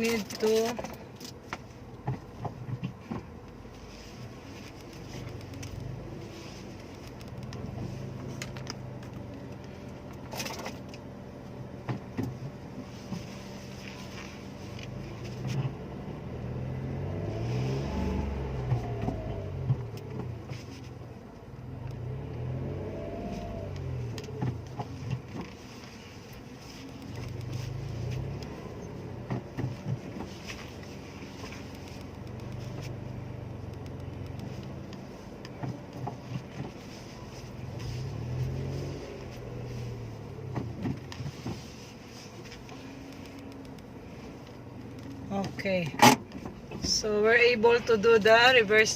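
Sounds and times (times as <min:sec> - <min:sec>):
car engine at low revs: 0:00.0 - 0:48.9
small clicks and knocks: 0:06.8 - 0:11.0, 0:29.2 - 0:36.8, 0:42.4 - 0:47.0.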